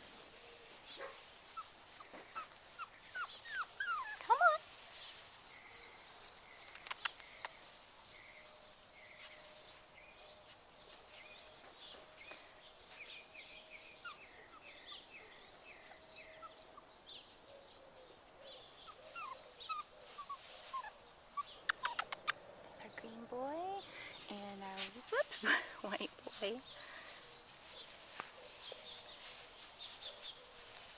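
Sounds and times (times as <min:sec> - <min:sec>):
puppies squeaking and whimpering: 0:01.5 - 0:04.6, 0:13.0 - 0:15.1, 0:18.2 - 0:22.4.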